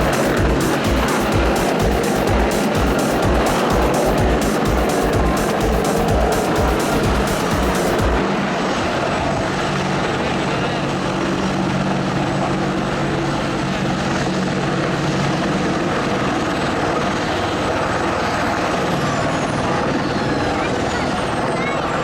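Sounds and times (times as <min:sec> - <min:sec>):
high whine: 0:00.0 - 0:11.2
helicopter rotor and engine: 0:00.0 - 0:22.0.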